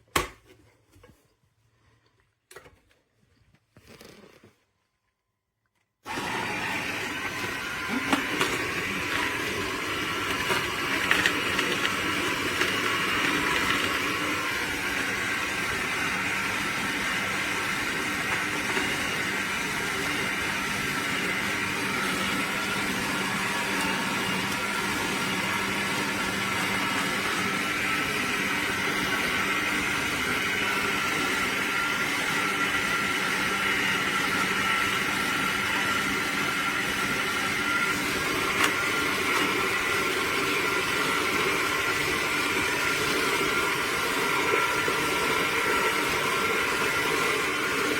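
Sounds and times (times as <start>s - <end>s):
juicer motor humming: 6.0s - 47.9s.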